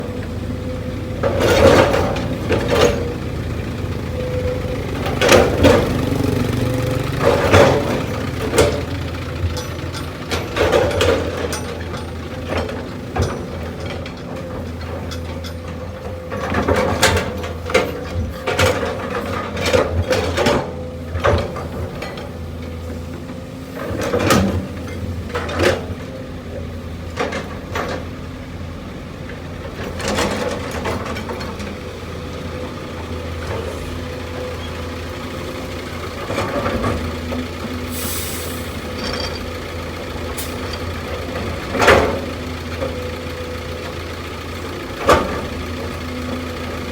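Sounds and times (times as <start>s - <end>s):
diesel machinery running: 0.0s - 46.9s
metal clanks and knocks: 1.2s - 3.4s, 7.0s - 26.2s, 38.8s - 43.0s
short hiss: 37.9s - 38.8s.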